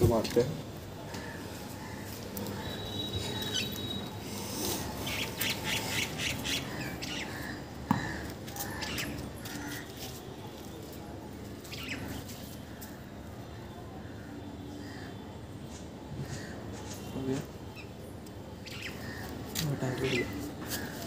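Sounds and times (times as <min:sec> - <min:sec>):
birds squawking and chirping: 0:01.1 - 0:10.0, 0:11.6 - 0:12.9, 0:18.6 - 0:21.0.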